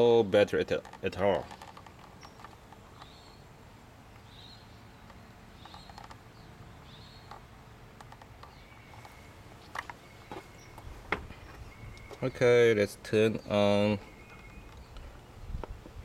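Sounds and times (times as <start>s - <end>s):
faint bird chirps: 4.2s - 7.4s, 8.4s - 12.7s, 13.3s - 15.6s
sharp clicks: 5.0s - 6.2s, 7.2s - 10.0s.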